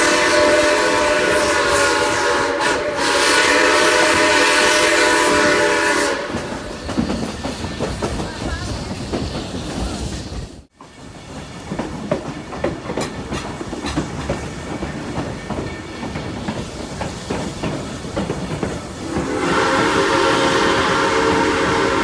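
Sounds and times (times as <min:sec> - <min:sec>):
steam whistle blowing: 0:00.0 - 0:06.7, 0:19.0 - 0:22.0
train wheels clicking on rail joints: 0:00.0 - 0:22.0.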